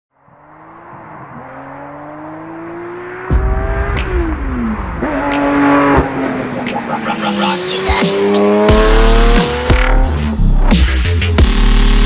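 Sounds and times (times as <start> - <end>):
sports car exhaust note: 3.0 - 10.6.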